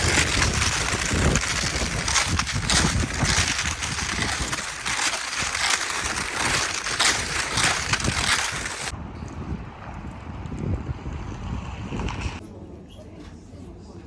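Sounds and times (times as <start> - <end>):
snow crunching: 0.0 - 8.9.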